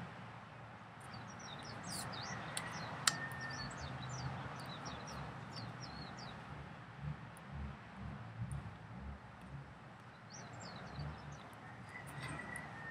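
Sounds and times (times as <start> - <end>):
outdoor background noise: 0.0 - 12.9
small bird chirping: 1.1 - 6.6, 8.6 - 12.9
sharp click: 2.6 - 3.5.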